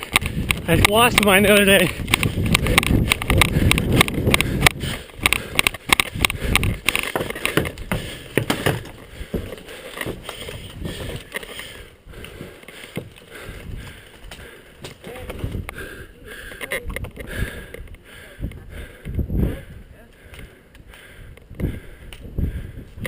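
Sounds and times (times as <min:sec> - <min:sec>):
close-up rustling and handling: 0:00.0 - 0:15.8.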